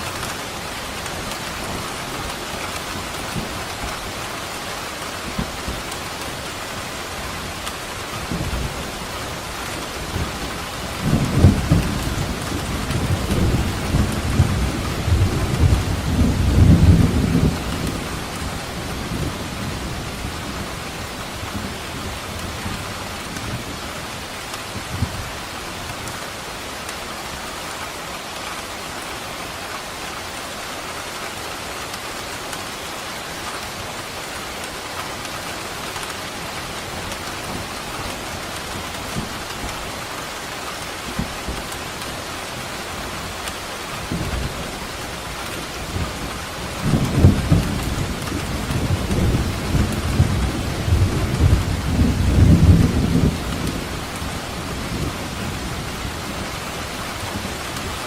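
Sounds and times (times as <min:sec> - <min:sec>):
heavy rain: 0:00.0 - 0:58.0
rolling thunder: 0:10.0 - 0:20.8, 0:44.0 - 0:56.5.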